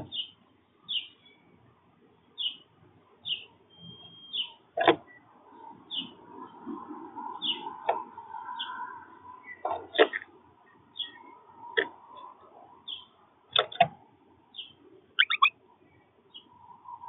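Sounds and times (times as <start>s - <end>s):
small songbird chirping: 0.0s - 1.6s, 2.3s - 5.2s, 10.9s - 11.3s, 12.9s - 13.2s, 14.5s - 16.6s
low steady background sound: 0.0s - 17.0s.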